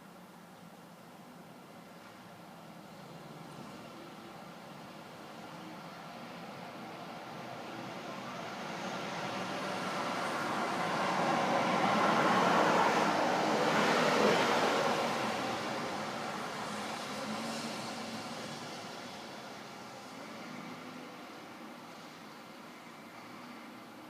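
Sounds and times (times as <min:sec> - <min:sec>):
vehicle passing by: 0:08.2 - 0:21.0.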